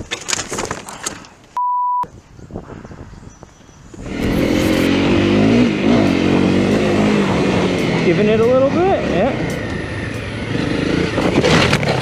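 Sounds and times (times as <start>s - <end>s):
short steady beep: 1.6s - 2.1s, 4.2s - 4.9s
motorcycle engine revving: 4.0s - 12.0s.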